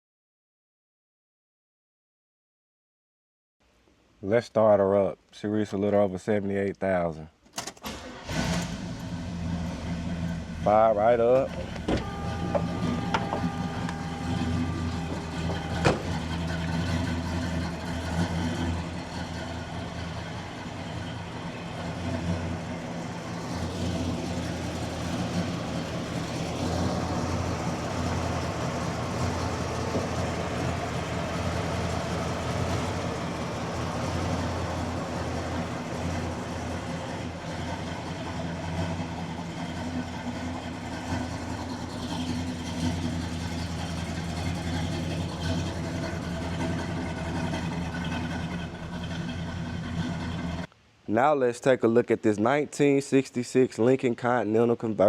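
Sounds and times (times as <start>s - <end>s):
car engine idling: 7.9s - 50.7s.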